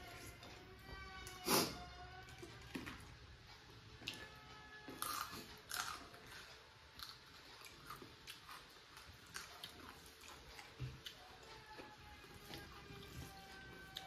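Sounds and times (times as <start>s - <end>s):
chewing raw chili crunches: 4.9s - 11.8s.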